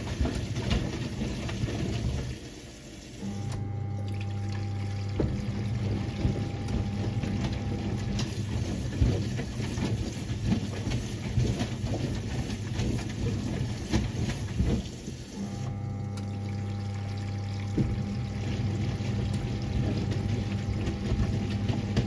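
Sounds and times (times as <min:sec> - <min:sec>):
wet laundry knocking in drum: 0:00.0 - 0:02.4, 0:05.1 - 0:15.3, 0:17.7 - 0:22.0
washing machine motor hum: 0:00.0 - 0:22.0
water sloshing in washing machine: 0:00.0 - 0:22.0.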